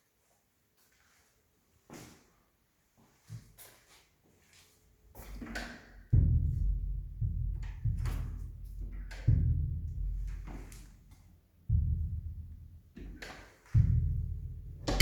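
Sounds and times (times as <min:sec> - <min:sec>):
deep booming drum hits: 0:06.2 - 0:10.4, 0:11.7 - 0:12.7, 0:13.8 - 0:15.0.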